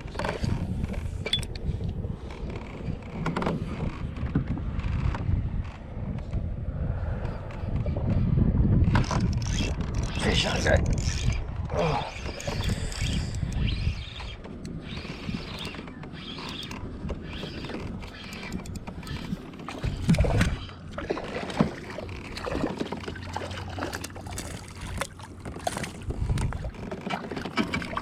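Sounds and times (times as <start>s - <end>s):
water splashing and sloshing: 8.8s - 28.0s.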